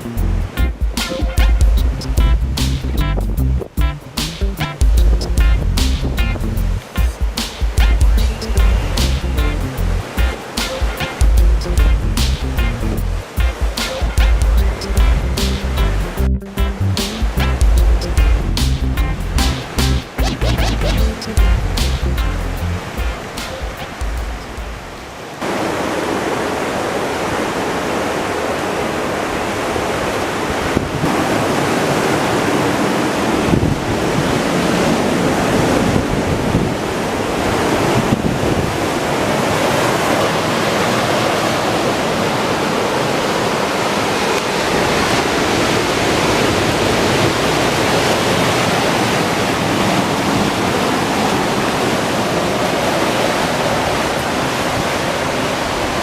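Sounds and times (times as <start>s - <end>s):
ocean surf breaking: 0.0s - 56.0s
wind buffeting microphone: 4.7s - 10.5s, 29.5s - 56.0s.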